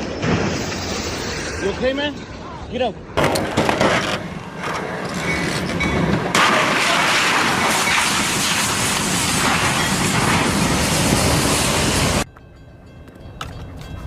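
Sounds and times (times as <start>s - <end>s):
train wheels rumbling on rails: 3.3s - 14.0s.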